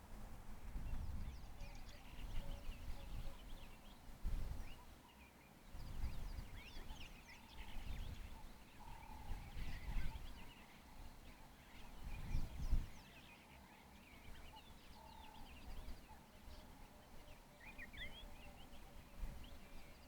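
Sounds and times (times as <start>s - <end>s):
wind buffeting microphone: 0.6s - 3.6s, 12.0s - 13.0s
birds chirping and twittering: 0.9s - 20.0s.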